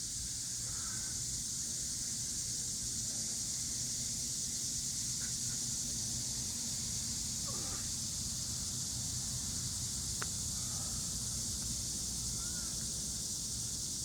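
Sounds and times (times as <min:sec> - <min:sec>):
cicadas droning: 0:00.0 - 0:14.0.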